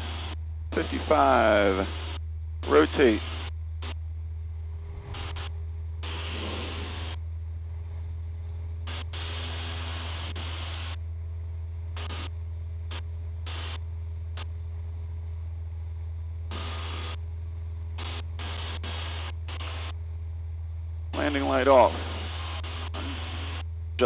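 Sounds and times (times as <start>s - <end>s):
radio static hiss bursts: 0.0s - 4.0s, 4.8s - 7.2s, 8.8s - 11.1s, 11.9s - 14.6s, 16.4s - 17.2s, 17.9s - 20.0s, 21.1s - 23.7s
airplane engine and propeller drone: 0.0s - 24.0s.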